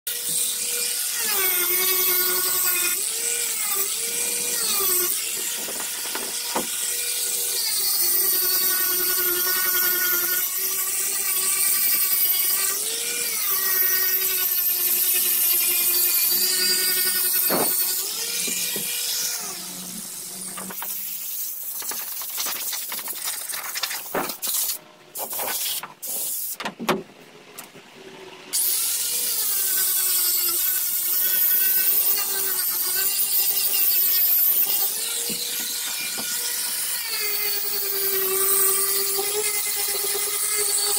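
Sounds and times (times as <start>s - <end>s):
electric grinder whining: 0.1s - 24.4s, 28.1s - 40.9s.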